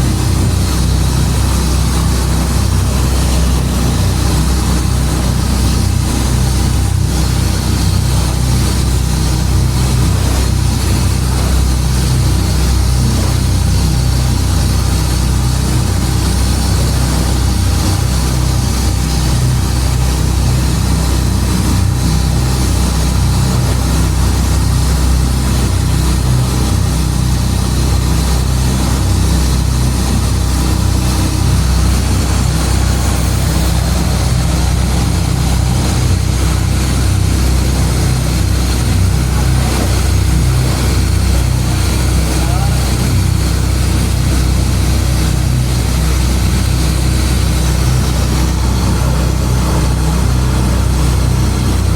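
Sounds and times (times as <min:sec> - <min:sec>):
boat engine running: 0:00.0 - 0:51.9.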